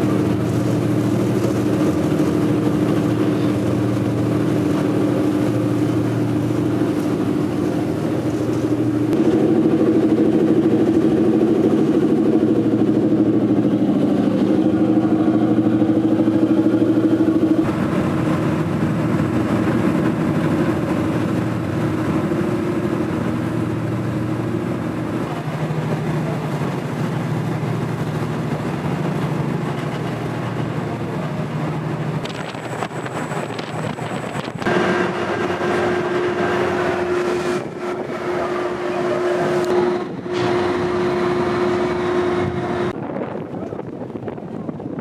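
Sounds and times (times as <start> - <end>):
ferry engine droning: 0.0 - 44.8.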